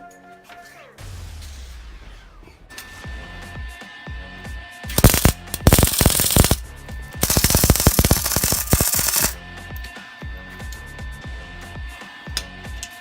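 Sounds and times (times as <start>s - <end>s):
welder arc crackling: 4.9s - 6.6s, 7.2s - 9.4s.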